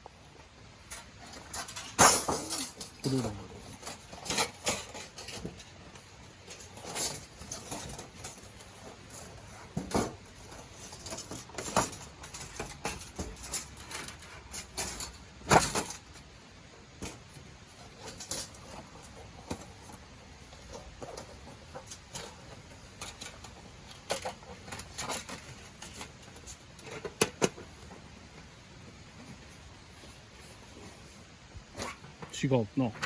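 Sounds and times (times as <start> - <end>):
steel plates clinking and knocking: 6.4 - 16.0.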